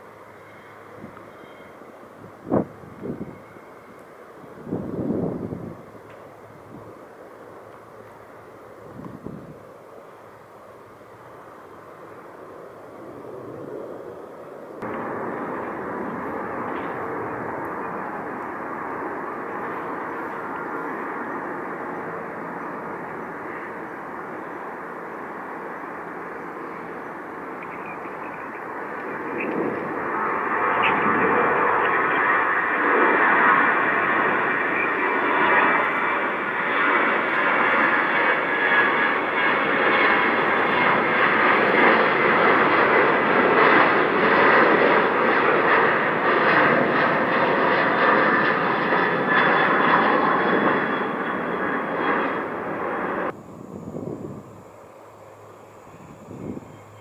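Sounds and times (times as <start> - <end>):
jet engines rushing and whining: 0.0 - 57.0.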